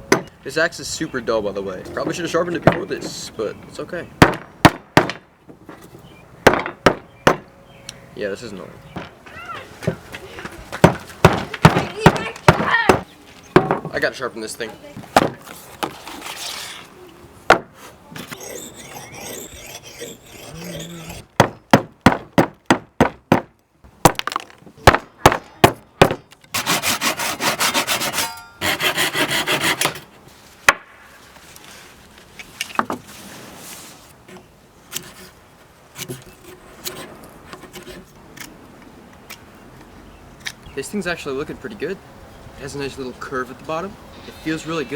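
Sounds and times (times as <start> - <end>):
sharp strikes on wood: 4.2 - 5.3, 6.4 - 7.5, 10.8 - 14.0, 15.2 - 16.0, 17.5 - 17.8, 21.4 - 30.0
quiet scraping and handling: 13.2 - 21.3, 29.6 - 38.9
rhythmic rasping or sawing: 18.2 - 21.5, 26.6 - 30.0.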